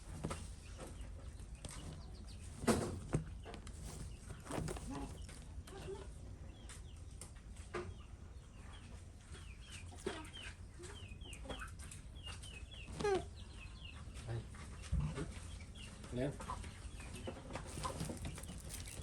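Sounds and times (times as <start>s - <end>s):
birds chirping: 0.3s - 7.1s, 16.9s - 19.0s.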